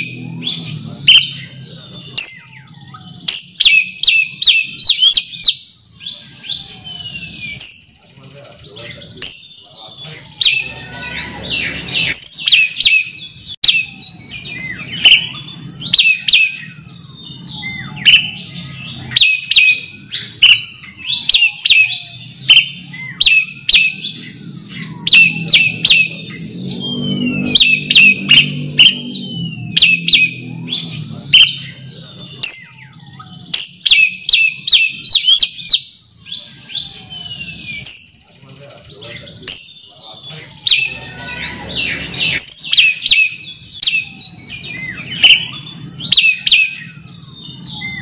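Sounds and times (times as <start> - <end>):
low murmur: 0.0 - 3.3
bird singing varied whistles: 0.0 - 11.4, 12.0 - 38.3, 39.0 - 48.0.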